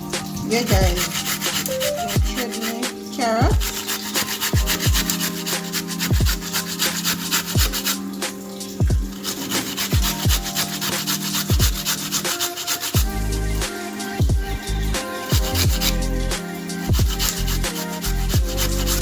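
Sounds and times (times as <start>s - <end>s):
background music with bass kicks: 0.0s - 1.3s, 3.4s - 3.8s, 4.6s - 5.1s, 6.1s - 6.5s, 8.8s - 9.2s, 10.0s - 10.5s, 11.5s - 11.9s, 13.0s - 19.0s
carrots rasping on grater: 0.5s - 13.2s, 15.0s - 19.0s.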